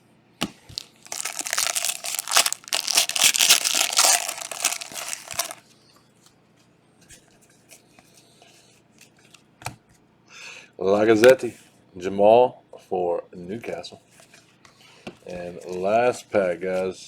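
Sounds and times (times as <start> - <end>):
cards being handled: 0.7 - 5.6
foil wrapper tearing and crinkling: 0.7 - 5.6.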